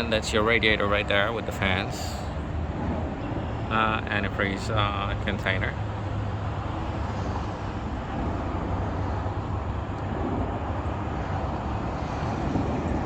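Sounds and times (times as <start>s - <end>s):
vehicle rumble with hiss: 0.0s - 13.0s.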